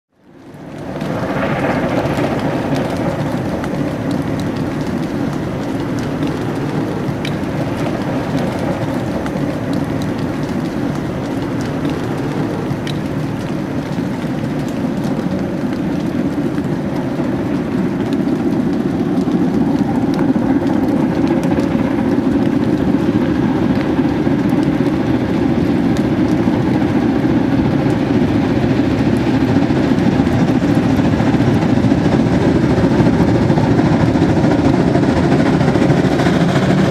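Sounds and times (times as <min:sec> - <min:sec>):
steam locomotive rushing: 0:30.8 - 0:36.9.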